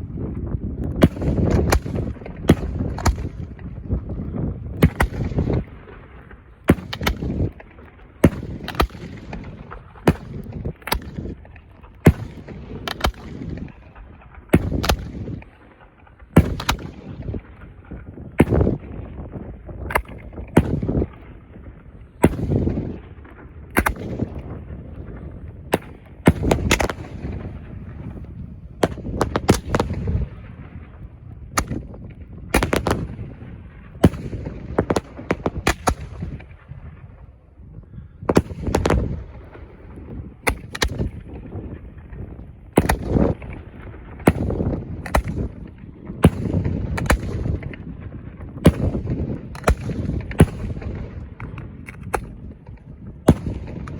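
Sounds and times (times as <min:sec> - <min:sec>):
fireworks bangs and cracks: 0:00.0 - 0:37.4, 0:38.2 - 0:53.9.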